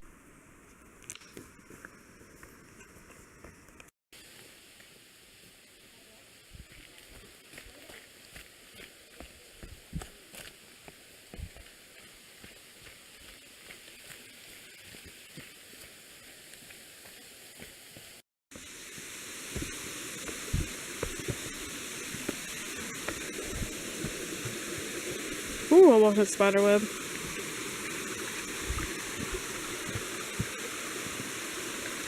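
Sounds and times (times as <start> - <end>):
faint steady hiss: 0.0 - 32.0
footsteps on a trail: 6.5 - 32.0
waterfall rushing: 18.6 - 32.0.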